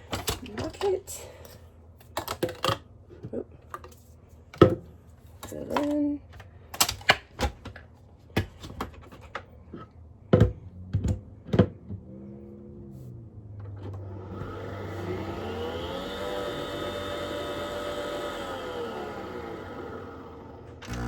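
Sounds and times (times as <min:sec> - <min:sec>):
coffee machine motor whine: 0:13.9 - 0:21.0
low hum: 0:19.1 - 0:21.0.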